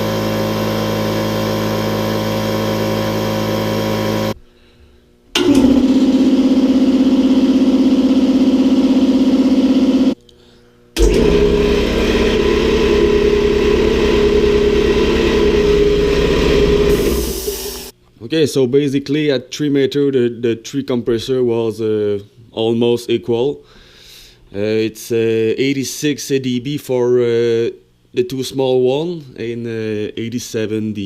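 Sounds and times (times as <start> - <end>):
air compressor running: 0.0 - 10.2, 11.0 - 17.9.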